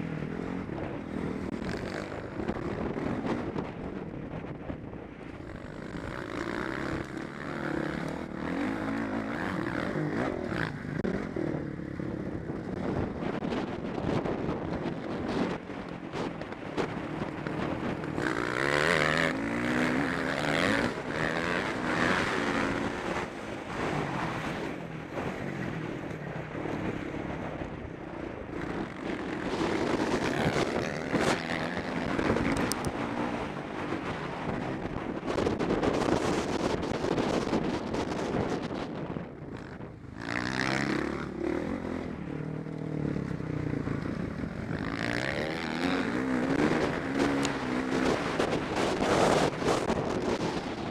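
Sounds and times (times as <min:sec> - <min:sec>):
motorbike engine revving: 0:05.4 - 0:13.5, 0:14.8 - 0:25.8, 0:28.5 - 0:34.4, 0:39.6 - 0:50.9.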